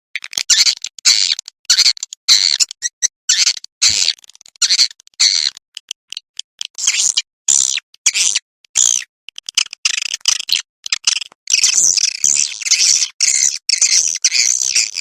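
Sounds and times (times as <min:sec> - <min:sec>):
buzzy twittering bird chirps: 0:09.8 - 0:15.0.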